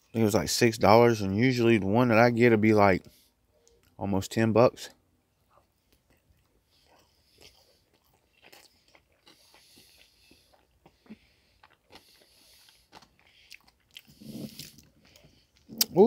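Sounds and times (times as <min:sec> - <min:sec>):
soft chewing: 0:05.3 - 0:16.0.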